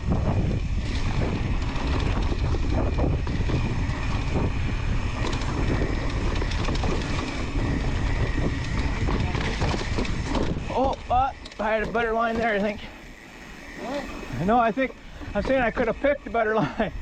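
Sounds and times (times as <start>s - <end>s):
wind on microphone: 0.0s - 11.5s
bike rattling over rough ground: 0.0s - 17.0s
bike tyres rolling: 0.0s - 17.0s.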